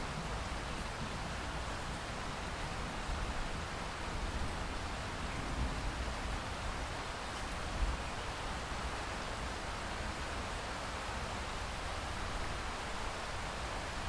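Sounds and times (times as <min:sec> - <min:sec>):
steady rain falling: 0:00.0 - 0:14.0
faint raindrop ticks: 0:07.3 - 0:07.9.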